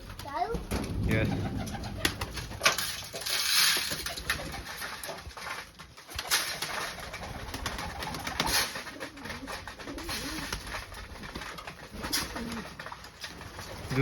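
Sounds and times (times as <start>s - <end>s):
pigeons cooing: 1.2s - 2.6s, 6.0s - 14.0s.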